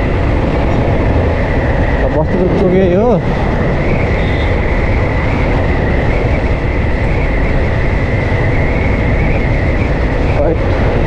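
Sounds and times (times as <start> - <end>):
wind rush on microphone: 0.0 - 11.0
steady high whistle: 3.8 - 10.6.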